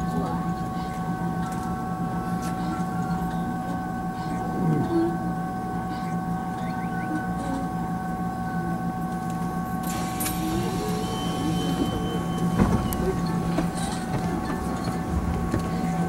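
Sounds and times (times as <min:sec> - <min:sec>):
train equipment humming: 0:00.0 - 0:16.0
thump: 0:12.6 - 0:12.9.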